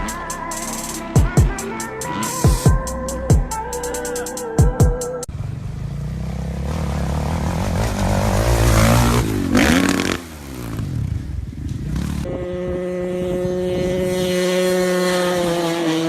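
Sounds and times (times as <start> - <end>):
dirt bike engines revving: 5.3 - 16.0
dirt bike passing close by: 5.3 - 16.0.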